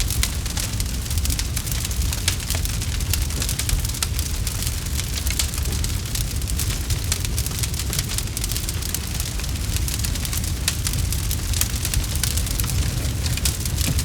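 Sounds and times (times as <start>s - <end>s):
campfire snaps and pops: 0.0s - 14.0s
fire low rumble: 0.0s - 14.0s.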